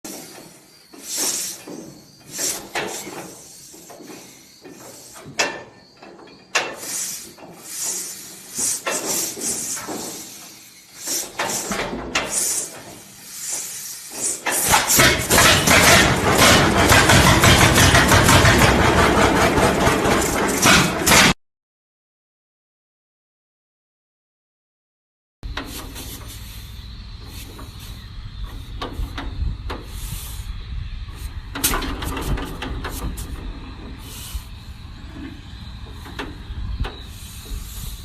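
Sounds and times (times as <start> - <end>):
tractor engine running: 0.0 - 21.4, 25.4 - 38.0
hissing: 0.1 - 5.7, 6.6 - 17.9
metal clanks: 0.1 - 21.4.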